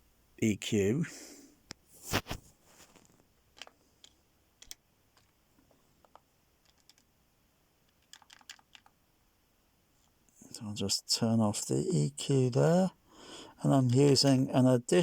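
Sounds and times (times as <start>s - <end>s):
computer keyboard clicking: 6.1s - 7.0s, 8.0s - 8.9s.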